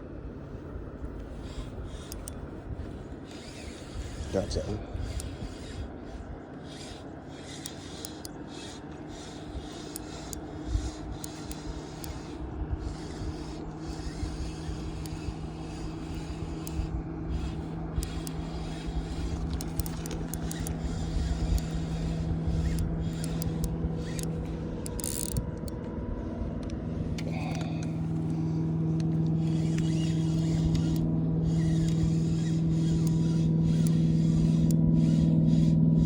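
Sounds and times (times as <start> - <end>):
boat motor humming: 0.0 - 36.0
small clicks and knocks: 6.5 - 26.0.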